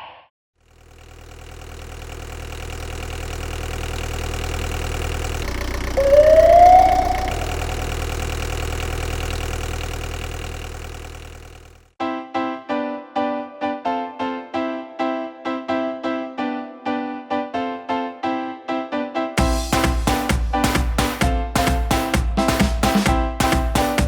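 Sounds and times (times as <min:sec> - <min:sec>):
fire truck engine idling: 0:00.7 - 0:06.0, 0:07.4 - 0:11.9
siren whoop: 0:06.0 - 0:08.2
piano-like music: 0:12.0 - 0:24.0.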